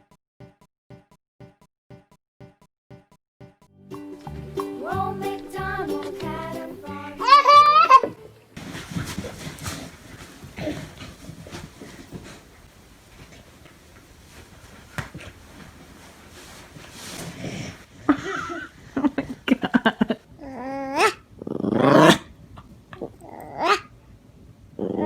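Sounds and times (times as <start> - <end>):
dog whining: 7.2 - 8.3, 23.0 - 23.9
dog growling: 20.5 - 22.3, 24.8 - 25.0.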